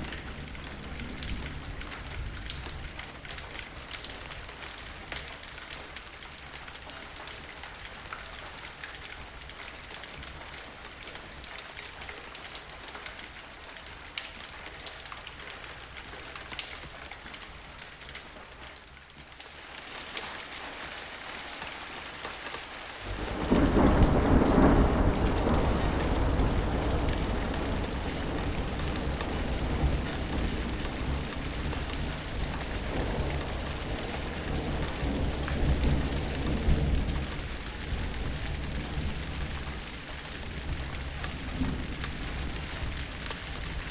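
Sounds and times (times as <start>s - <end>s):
raindrops ticking on a surface: 0.0s - 43.9s
steady rain: 0.0s - 43.9s
thunder rumbling: 23.0s - 43.9s.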